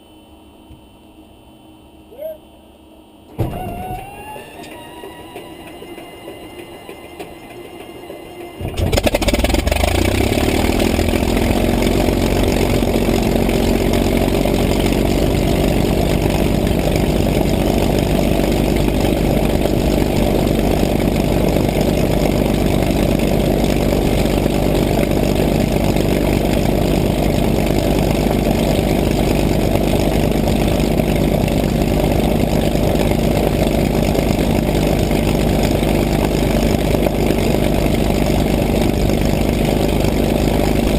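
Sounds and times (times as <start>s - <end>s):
piston aircraft engine running: 1.8s - 40.9s.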